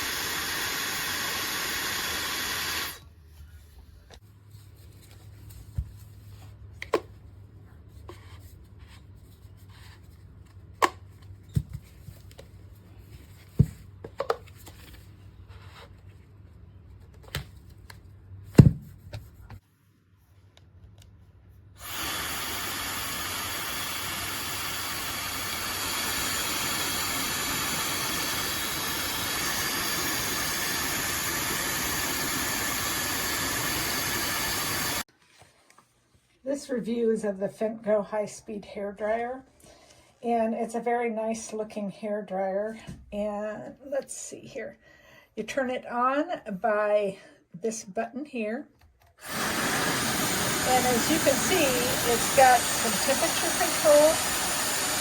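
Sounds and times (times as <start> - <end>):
hair dryer blowing: 0.0 - 3.0, 21.8 - 35.1, 49.2 - 55.0.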